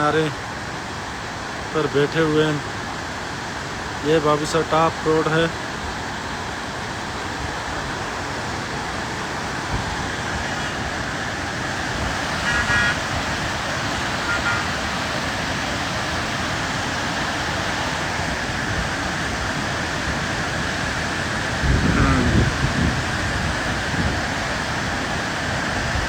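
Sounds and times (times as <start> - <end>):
waterfall and river water rushing: 0.0 - 26.0
road traffic: 2.6 - 26.0
vehicle horn tooting: 10.2 - 11.0, 12.2 - 15.3.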